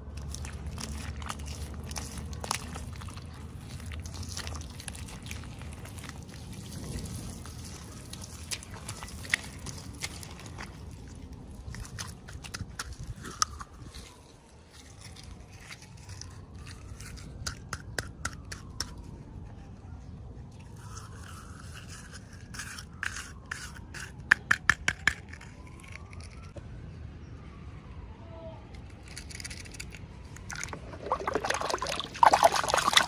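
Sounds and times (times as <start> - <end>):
plastic packaging being handled: 0.0 - 17.4.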